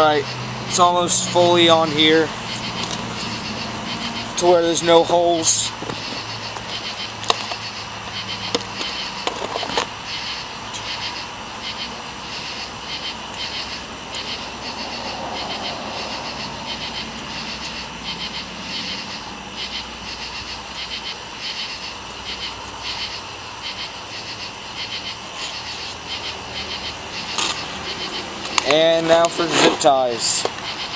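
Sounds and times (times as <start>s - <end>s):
insects chirring: 0.0s - 30.9s
handling clicks and rubs: 2.4s - 3.6s, 27.3s - 27.8s, 28.4s - 30.7s.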